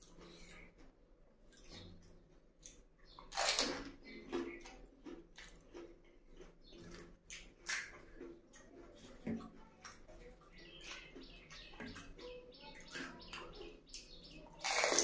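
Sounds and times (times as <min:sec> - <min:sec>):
crisp chewing: 0:00.0 - 0:15.0
wet crunch of biting: 0:02.6 - 0:08.4, 0:14.6 - 0:15.0.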